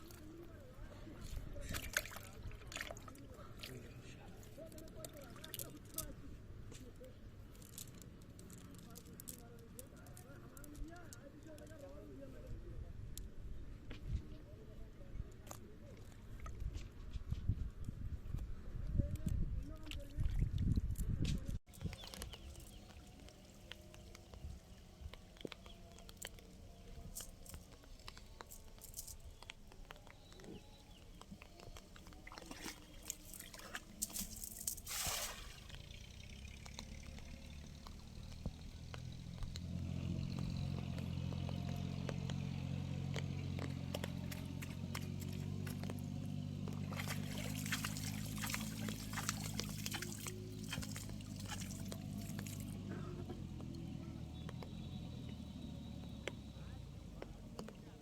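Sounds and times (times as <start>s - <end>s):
water sloshing and trickling: 0.0s - 6.2s, 21.7s - 38.6s, 43.4s - 54.0s.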